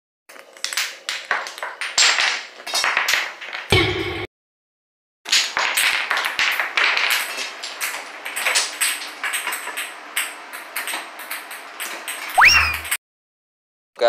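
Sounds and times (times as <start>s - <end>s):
wooden blocks clacking and falling: 0.4s - 3.7s, 5.3s - 12.9s.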